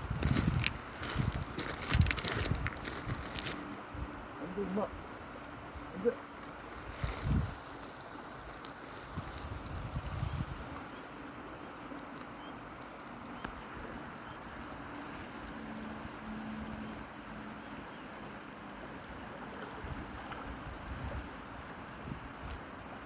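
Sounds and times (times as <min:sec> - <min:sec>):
river current rushing: 0:00.0 - 0:09.4.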